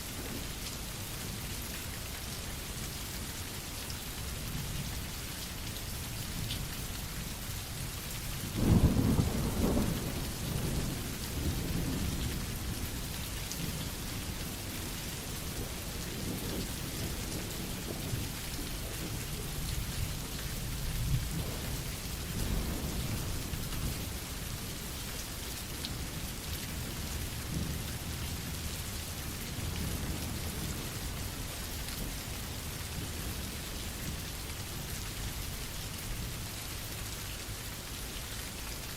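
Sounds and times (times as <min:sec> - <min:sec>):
steady rain: 0:00.0 - 0:38.9
thunder rumbling: 0:08.6 - 0:12.8.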